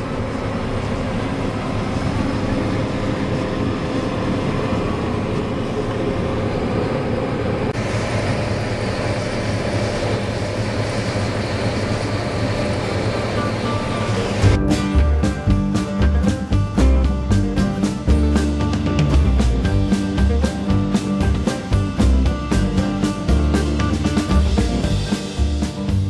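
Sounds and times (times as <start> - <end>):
combine harvester running: 0.0 - 26.0.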